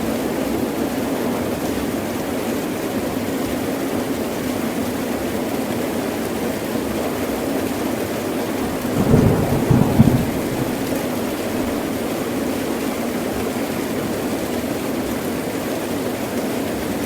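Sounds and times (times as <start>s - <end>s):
heavy rain falling: 5.7s - 17.0s
low rumble of thunder: 8.6s - 12.4s.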